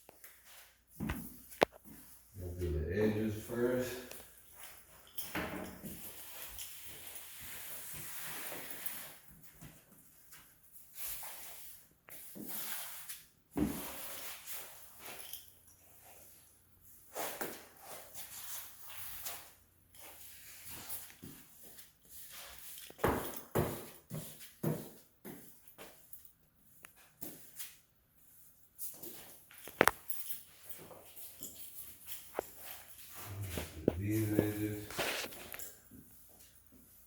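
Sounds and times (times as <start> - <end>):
brush swishing on wood floor: 6.0 - 9.3, 10.9 - 14.9, 17.1 - 22.9, 32.4 - 37.0.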